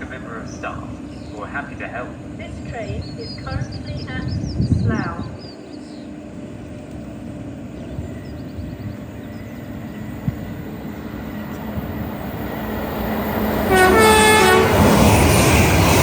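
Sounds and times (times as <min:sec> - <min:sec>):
train rumble: 0:00.0 - 0:16.0
train horn blast: 0:13.6 - 0:15.0.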